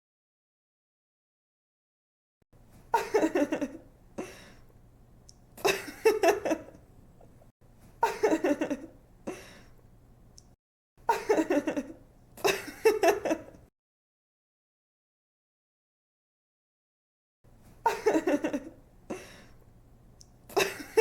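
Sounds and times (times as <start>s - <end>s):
woman giggling and laughing: 2.9s - 3.9s, 5.6s - 6.8s, 8.0s - 9.5s, 11.1s - 13.6s, 17.8s - 19.2s, 20.5s - 21.0s.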